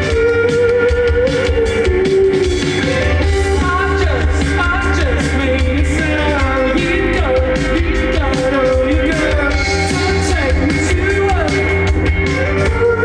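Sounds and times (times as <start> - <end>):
live rock band playing: 0.0 - 13.0
person singing: 0.0 - 13.0.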